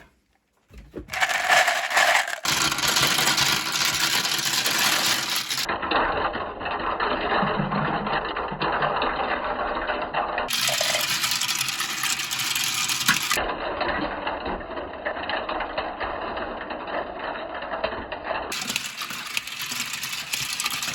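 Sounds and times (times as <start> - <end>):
marbles clattering down plastic track: 1.1 - 5.8, 10.5 - 13.5, 14.8 - 20.9.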